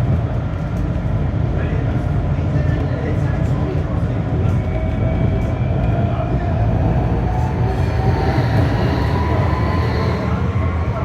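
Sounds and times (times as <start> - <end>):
tram rumbling: 0.0 - 11.0.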